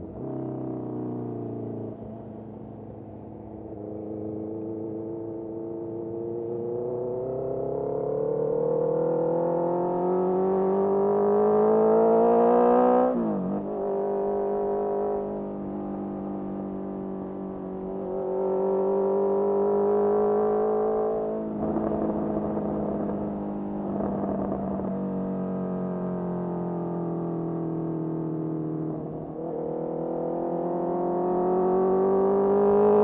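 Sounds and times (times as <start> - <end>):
motorcycle engine revving: 6.7 - 15.8, 29.1 - 33.0.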